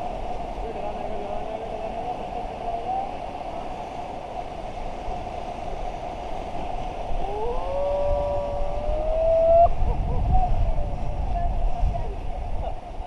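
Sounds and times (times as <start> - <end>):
river rapids rushing: 0.0 - 9.9.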